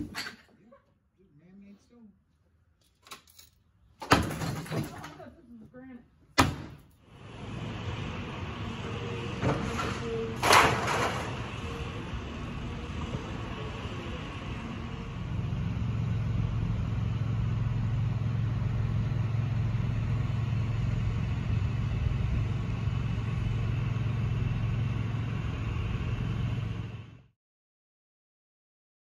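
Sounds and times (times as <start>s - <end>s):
heavy machinery engine humming: 7.0s - 27.3s.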